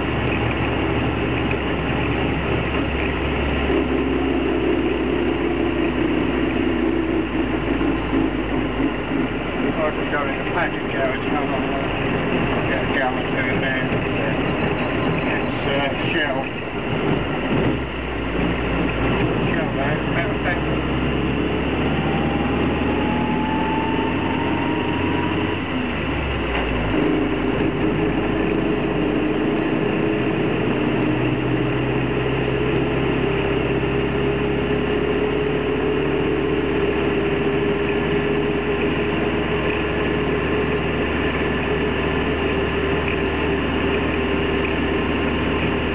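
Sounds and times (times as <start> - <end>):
car engine hum: 0.0 - 45.9
road noise: 0.0 - 45.9
thin whine rising in pitch: 18.2 - 45.9.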